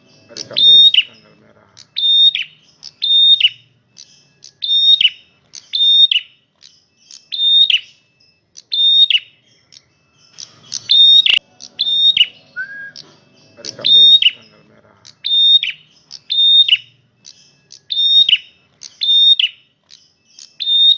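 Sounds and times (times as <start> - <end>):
bird calling: 0.0 - 20.9.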